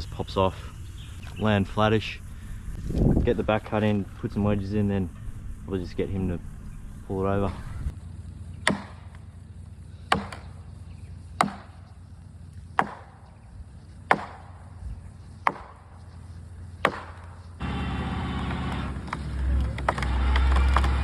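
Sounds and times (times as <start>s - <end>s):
engine running: 0.0s - 21.0s
wedges pounded into tree: 8.6s - 9.2s, 12.8s - 13.2s, 14.1s - 14.6s, 15.4s - 15.9s, 16.8s - 17.4s.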